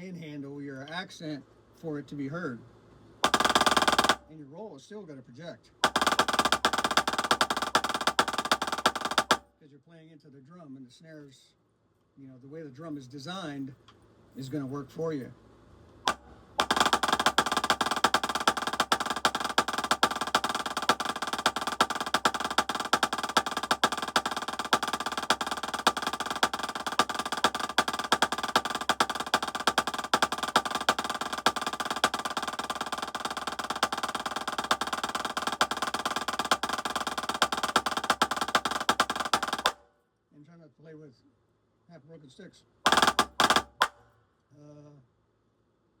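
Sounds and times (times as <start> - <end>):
snare drum rolls with accents: 3.2 - 4.3, 5.8 - 9.4, 16.1 - 39.8, 42.9 - 44.0.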